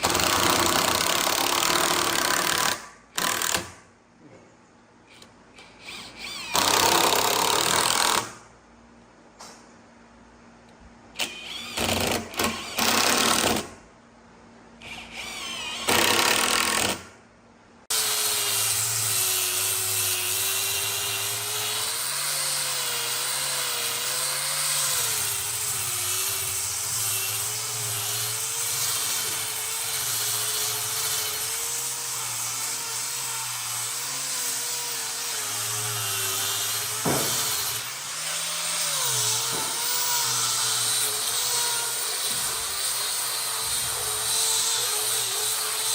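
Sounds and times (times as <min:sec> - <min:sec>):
power tool cutting wood: 0:14.8 - 0:17.0, 0:17.9 - 0:45.9.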